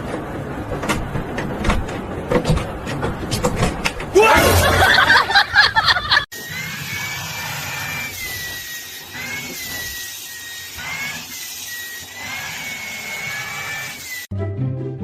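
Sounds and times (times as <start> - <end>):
small appliance motor whining: 6.3 - 14.3.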